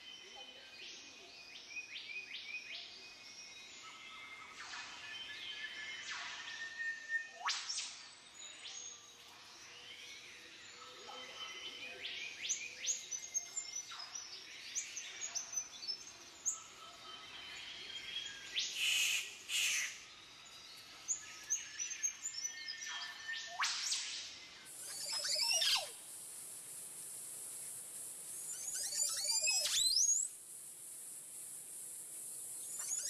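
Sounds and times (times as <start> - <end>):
forest birds calling: 8.4 - 33.0.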